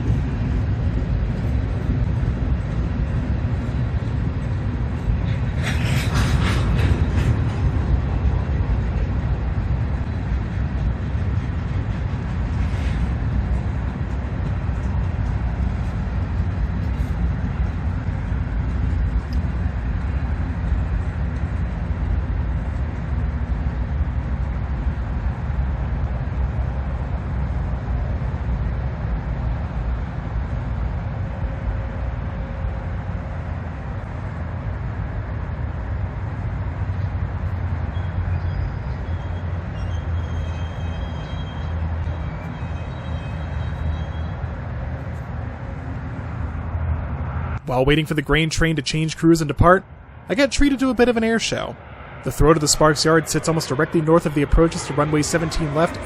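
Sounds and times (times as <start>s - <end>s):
diesel locomotive rumble: 0.0s - 56.0s.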